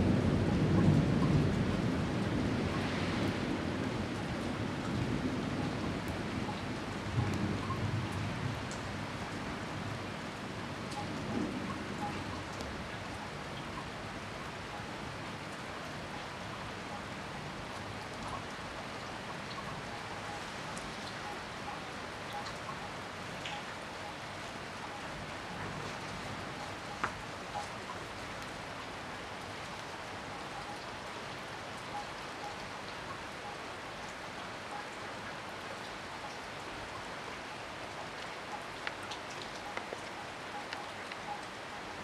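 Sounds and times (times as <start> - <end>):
heavy rain falling: 0.0 - 42.0
water drips ticking: 38.2 - 41.6.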